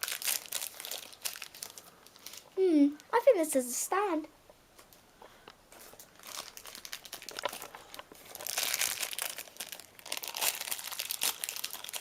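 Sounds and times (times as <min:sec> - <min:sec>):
plastic packaging crinkling: 0:00.0 - 0:02.6, 0:05.7 - 0:12.0.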